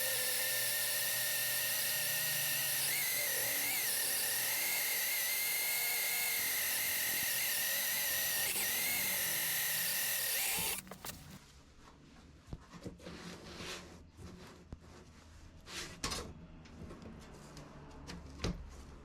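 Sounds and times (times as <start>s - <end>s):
electric drill whining: 0.0s - 11.3s.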